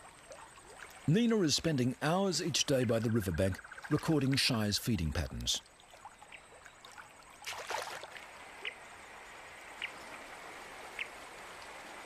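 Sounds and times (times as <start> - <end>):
running river water: 0.0 - 12.0
water splash: 6.9 - 8.3.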